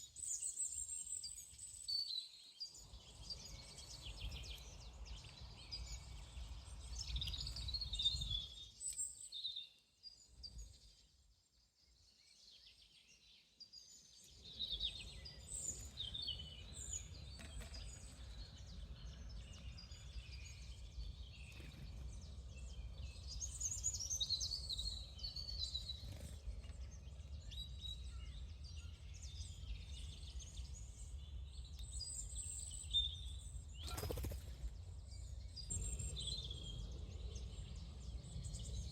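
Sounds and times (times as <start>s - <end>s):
birds chirping: 33.7s - 38.9s.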